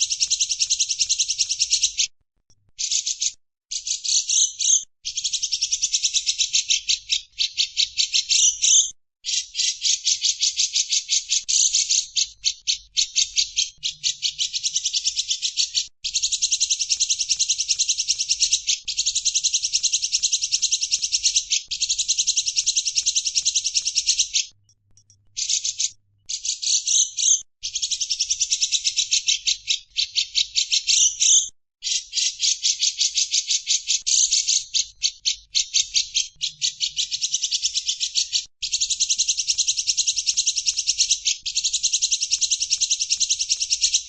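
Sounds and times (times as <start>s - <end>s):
songbird chattering: 0.0s - 2.0s, 25.4s - 44.0s.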